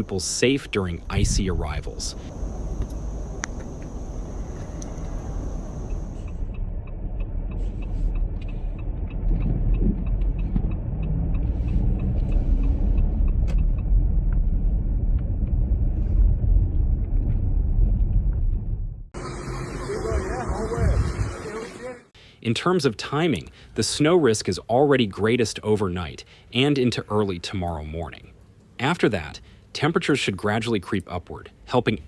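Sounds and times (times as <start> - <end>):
vehicle rumble: 0.0 - 21.4.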